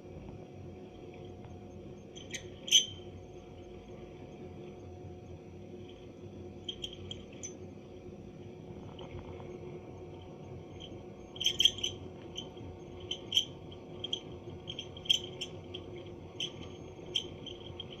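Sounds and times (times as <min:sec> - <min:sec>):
boiler fan humming: 0:00.0 - 0:18.0.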